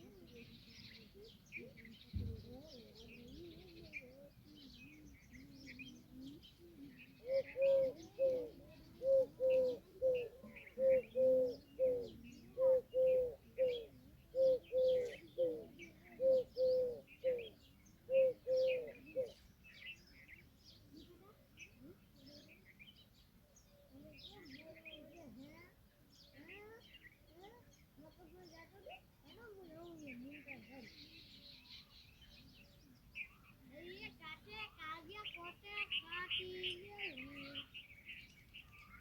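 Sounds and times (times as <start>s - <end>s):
small birds chirping: 0.0s - 39.0s
peahen calling: 2.7s - 19.4s.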